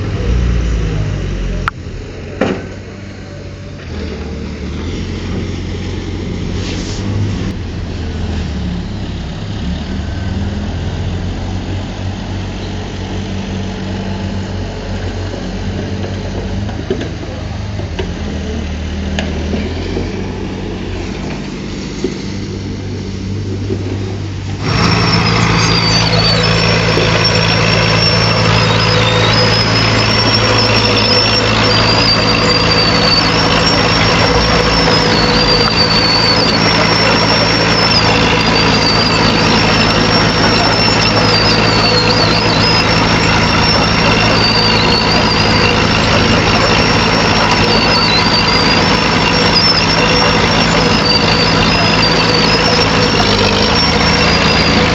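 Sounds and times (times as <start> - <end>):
heavy machine diesel engine: 0.0 - 54.9
high wavering squeal: 24.6 - 54.9.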